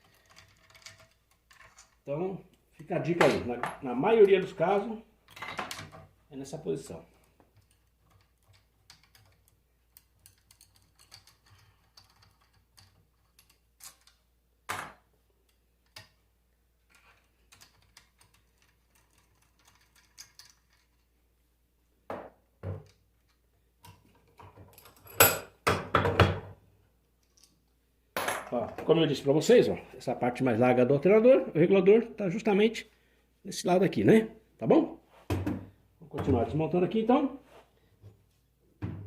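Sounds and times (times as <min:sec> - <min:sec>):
metal parts clicking and tapping: 0:00.0 - 0:02.1, 0:07.2 - 0:14.3, 0:16.9 - 0:21.2.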